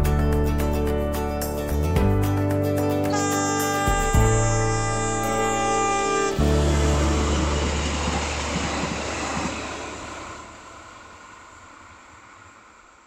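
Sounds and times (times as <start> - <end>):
train rumble with wheel noise: 3.1 - 13.0.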